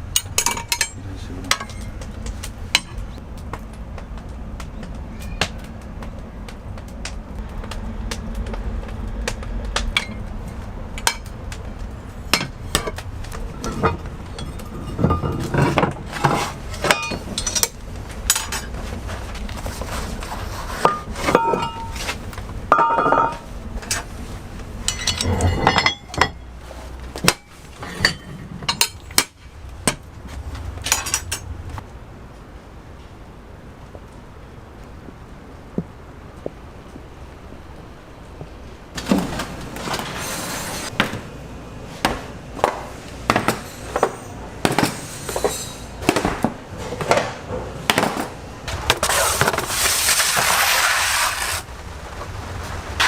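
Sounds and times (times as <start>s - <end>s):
low steady hum: 0.0s - 50.0s
utensils and dishes clinking: 0.1s - 2.1s, 12.3s - 18.8s, 20.8s - 22.1s, 22.7s - 24.1s, 24.8s - 26.5s, 30.8s - 31.5s, 43.2s - 48.4s.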